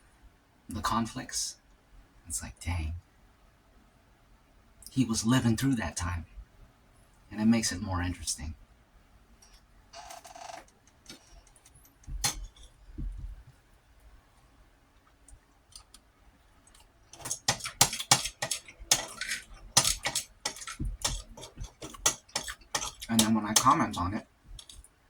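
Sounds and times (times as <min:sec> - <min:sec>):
utensil clinking on plate: 0:17.1 - 0:24.0.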